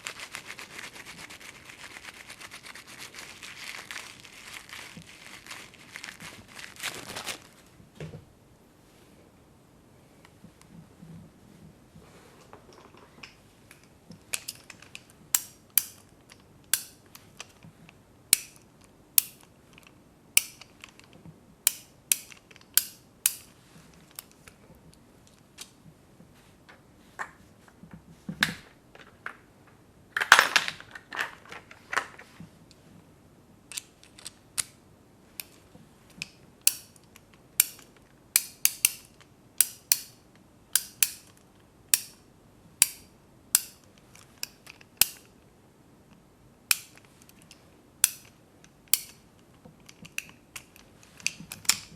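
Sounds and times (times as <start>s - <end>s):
small hand tools clicking and snipping: 13.2s - 17.6s, 18.3s - 21.1s, 21.7s - 24.5s, 36.2s - 42.2s, 42.8s - 45.3s, 46.7s - 49.2s.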